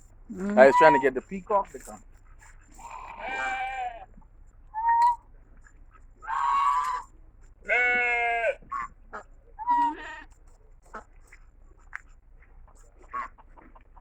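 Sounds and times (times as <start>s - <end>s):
sheep bleating: 2.8s - 4.1s, 7.6s - 8.6s, 9.6s - 10.3s.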